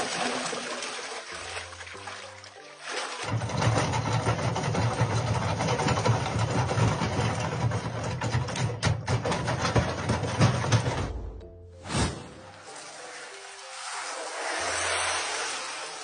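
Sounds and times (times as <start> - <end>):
rattling engine-like rumble: 3.3 - 11.2.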